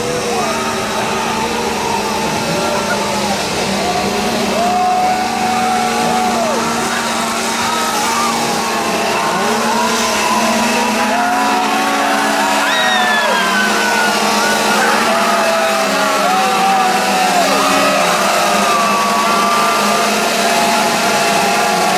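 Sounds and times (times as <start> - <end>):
people screaming and yelling: 0.0 - 21.9
steady low drone: 0.0 - 21.9.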